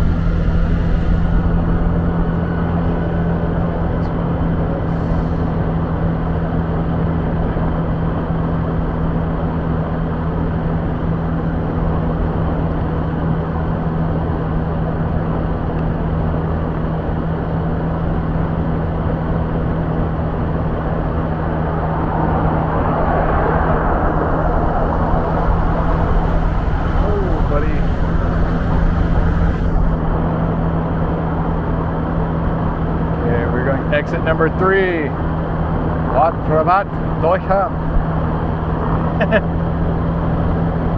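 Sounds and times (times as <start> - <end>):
motorbike engine humming: 0.0 - 6.8, 19.8 - 32.4
wind and road noise: 0.0 - 40.9.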